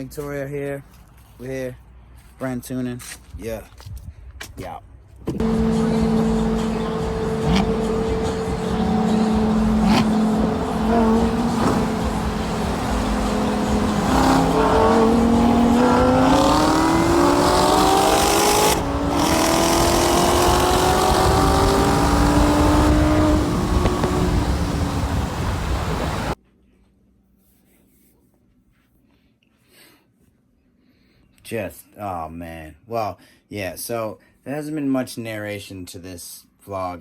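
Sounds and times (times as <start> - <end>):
car engine accelerating: 5.4 - 26.4.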